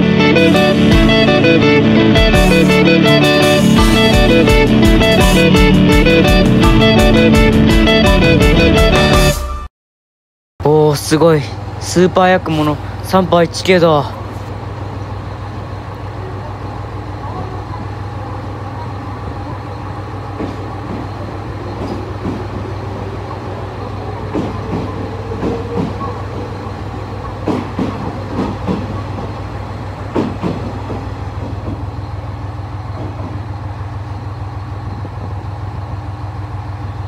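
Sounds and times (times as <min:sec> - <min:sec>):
train running past: 0:00.0 - 0:09.4, 0:10.6 - 0:37.0
wheels clacking over rail joints: 0:19.6 - 0:32.1.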